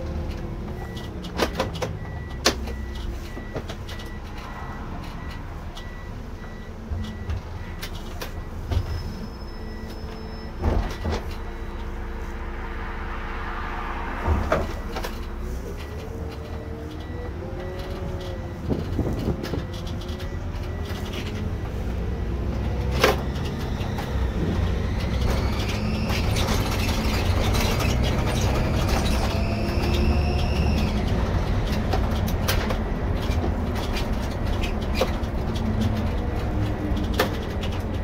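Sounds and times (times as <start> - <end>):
coach engine rumble: 0.0 - 38.0
gearbox whine: 14.2 - 38.0.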